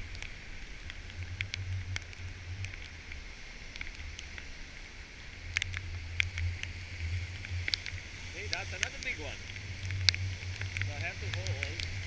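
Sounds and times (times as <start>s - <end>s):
droplets ticking on camera: 0.0s - 12.0s
ocean surf hissing: 8.0s - 9.4s.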